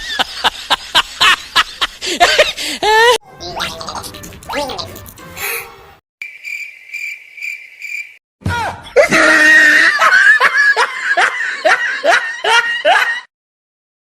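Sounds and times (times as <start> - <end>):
loud rhythmic laughter: 0.0 - 3.2, 9.0 - 13.3.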